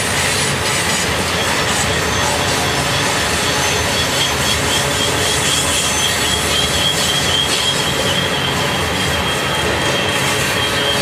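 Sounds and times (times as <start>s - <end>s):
high wheel squeal: 0.0s - 11.0s
train wheels rolling: 0.0s - 11.0s.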